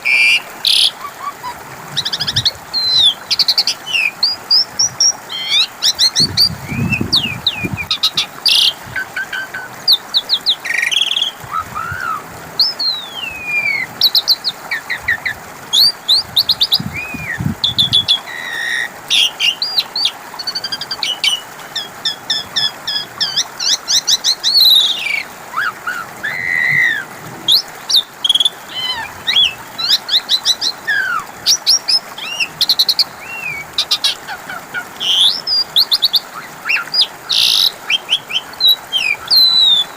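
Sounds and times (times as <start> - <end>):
starling singing whistles and chatter: 38.6 - 39.9.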